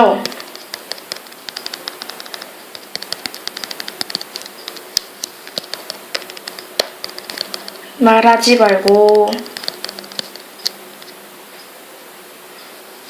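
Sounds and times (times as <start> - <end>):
keyboard typing clicks: 0.2 - 7.8, 8.8 - 11.2.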